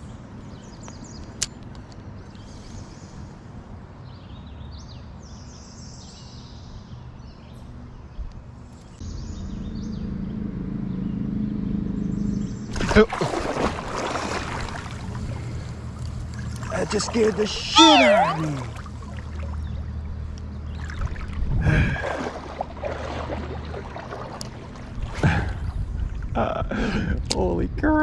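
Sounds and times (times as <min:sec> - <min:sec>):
birds chirping faintly: 0:17.6 - 0:18.7.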